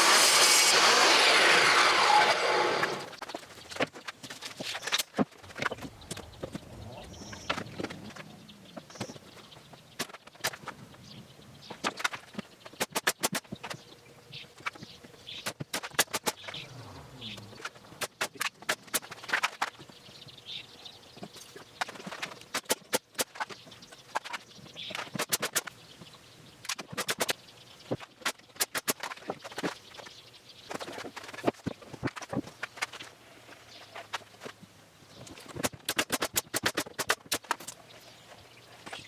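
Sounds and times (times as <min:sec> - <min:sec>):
faint rustling: 0:03.9 - 0:10.0.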